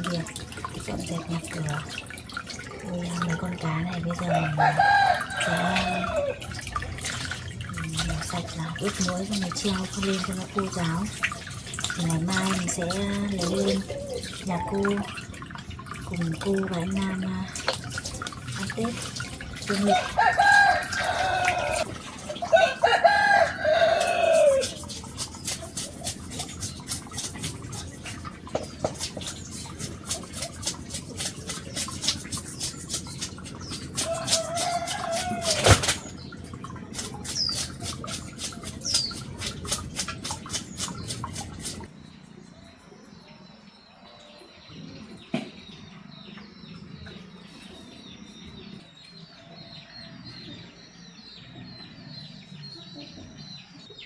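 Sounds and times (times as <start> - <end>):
rooster crowing: 4.2 - 6.4, 19.9 - 21.8, 22.4 - 24.7
chickens clucking: 18.5 - 26.8.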